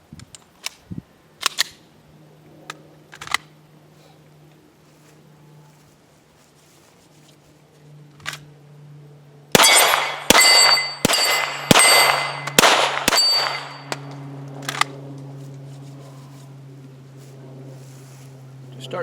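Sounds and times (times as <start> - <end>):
pistol shots: 9.6 - 14.0
ringing metallic clang: 9.6 - 14.1.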